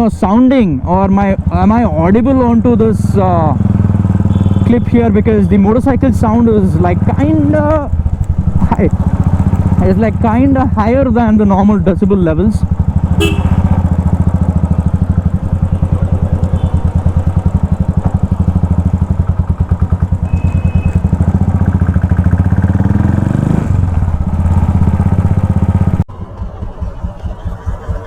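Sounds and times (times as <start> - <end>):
motorcycle engine idling loudly: 1.0 - 28.0.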